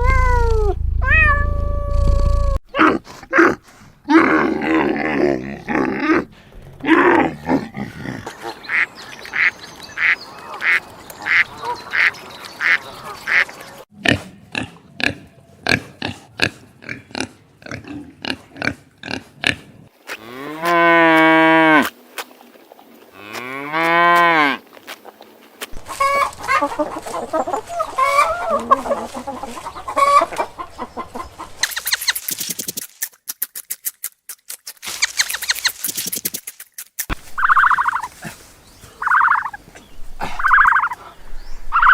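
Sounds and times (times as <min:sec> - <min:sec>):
farm animal calls: 0:06.8 - 0:13.6, 0:25.7 - 0:32.1, 0:37.1 - 0:39.6, 0:40.2 - 0:41.9
geese honking: 0:25.8 - 0:30.7, 0:37.4 - 0:38.1, 0:39.0 - 0:39.6, 0:40.4 - 0:41.9.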